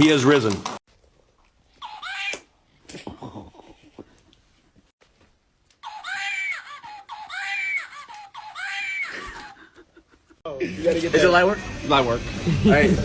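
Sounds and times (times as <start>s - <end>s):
high-pitched wailing cries: 1.8s - 2.5s, 5.8s - 9.8s.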